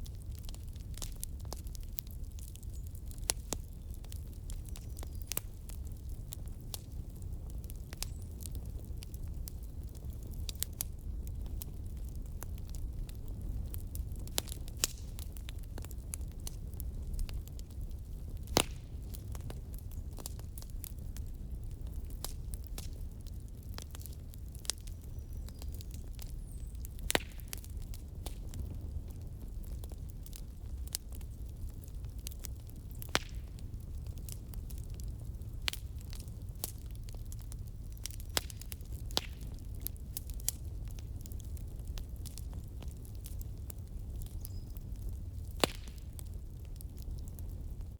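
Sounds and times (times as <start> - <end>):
low fire rumble: 0.0 - 47.9
wood fire crackling: 0.0 - 47.9
sharp fire pops: 10.0 - 47.9.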